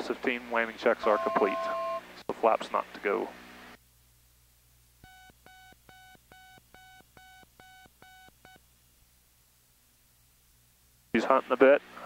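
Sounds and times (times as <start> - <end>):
short alert beeps: 1.1 - 2.0.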